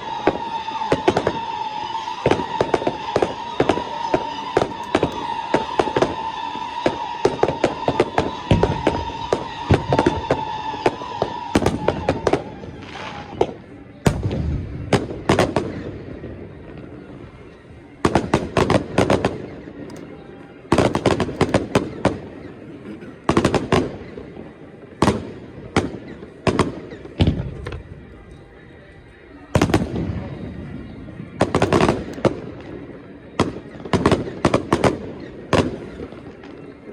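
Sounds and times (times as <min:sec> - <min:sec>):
firework bangs: 0:00.0 - 0:20.0, 0:20.6 - 0:28.2, 0:29.1 - 0:36.9
high whistle: 0:00.0 - 0:22.5.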